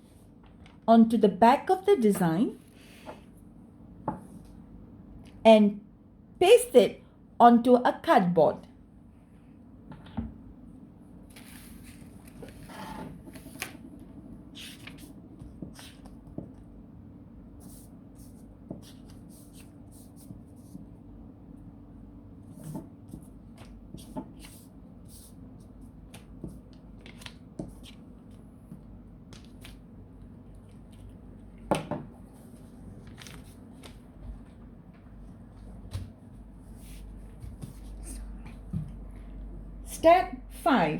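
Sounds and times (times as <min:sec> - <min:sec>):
paper rustling: 0:11.3 - 0:13.9, 0:14.5 - 0:16.2, 0:26.1 - 0:28.4, 0:32.3 - 0:34.6.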